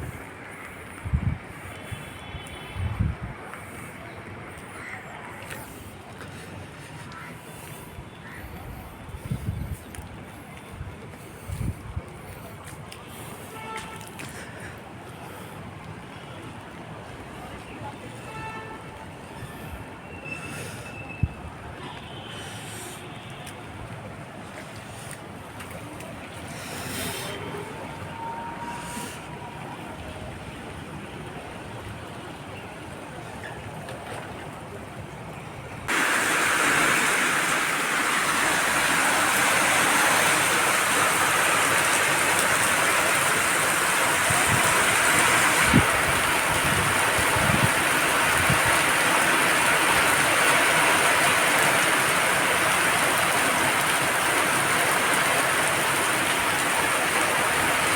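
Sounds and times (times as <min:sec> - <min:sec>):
heavy rain pouring: 0:35.9 - 0:57.9.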